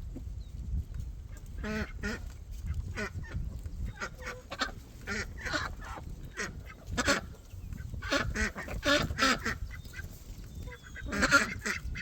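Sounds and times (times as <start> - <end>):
birds calling: 3.0 - 12.0.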